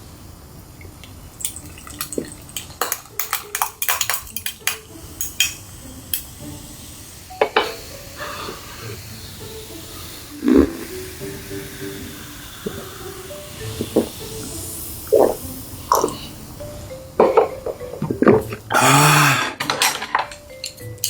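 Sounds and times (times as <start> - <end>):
tableware and utensils clattering: 1.4 - 6.3, 17.2 - 18.7, 19.3 - 21.0.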